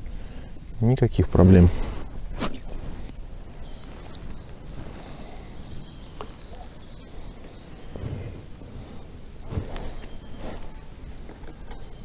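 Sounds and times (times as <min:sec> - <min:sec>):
low rumble of wind: 0:00.0 - 0:12.0.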